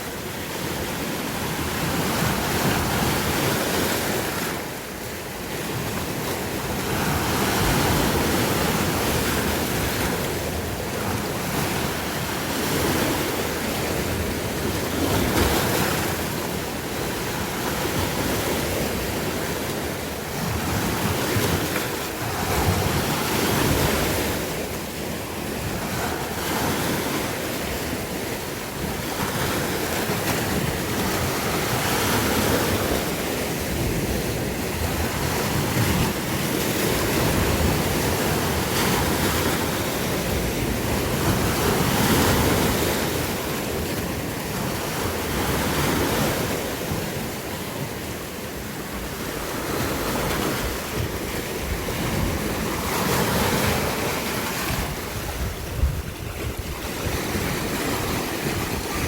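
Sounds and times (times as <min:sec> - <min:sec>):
sea waves washing onto shore: 0:00.0 - 0:59.0
wind buffeting microphone: 0:49.7 - 0:59.0.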